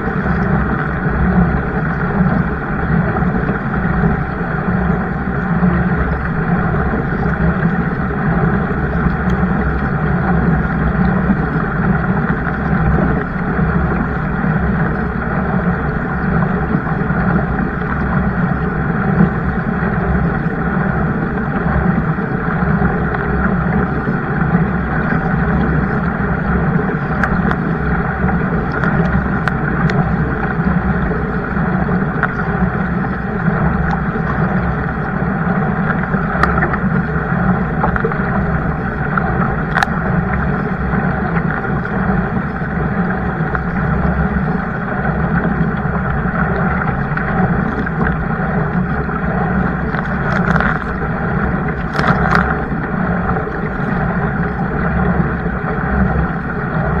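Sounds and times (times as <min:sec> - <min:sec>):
water rushing: 0:00.0 - 0:57.0
wind noise: 0:46.4 - 0:55.3.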